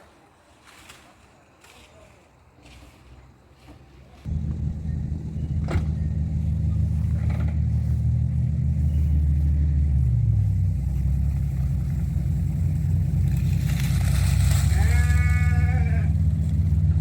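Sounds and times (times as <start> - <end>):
tractor engine running: 4.2 - 17.0.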